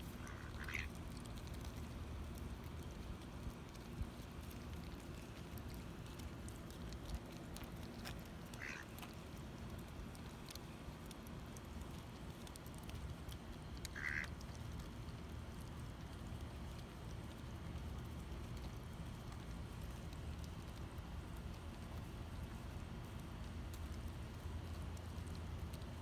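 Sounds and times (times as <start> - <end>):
low background rumble: 0.0 - 26.0
faint ticks: 0.1 - 26.0
duck quacking: 0.2 - 0.9, 8.6 - 8.8, 14.0 - 14.3.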